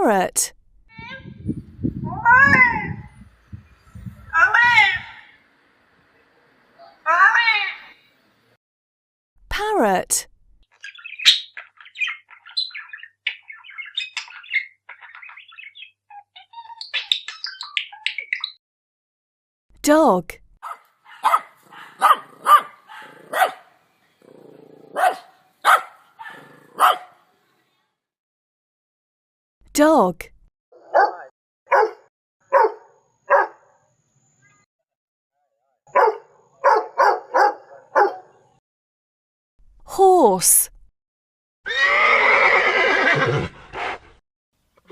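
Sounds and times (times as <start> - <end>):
parrot chattering: 10.8 - 18.5
dog barking: 20.6 - 23.8, 24.9 - 27.2, 30.8 - 33.8, 35.9 - 38.4.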